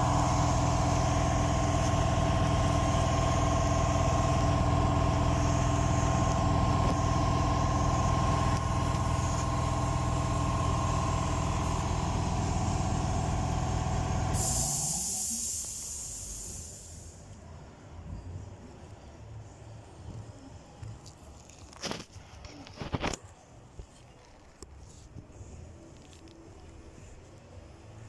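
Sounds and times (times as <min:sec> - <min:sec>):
machine motor humming: 0:00.0 - 0:15.8
short hiss of air: 0:11.6 - 0:17.3.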